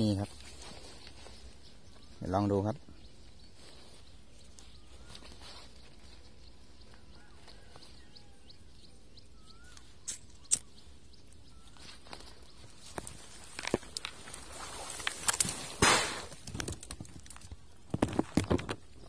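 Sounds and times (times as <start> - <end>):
faint bird whistles: 9.3 - 10.9
sharp clicks: 9.7 - 10.8.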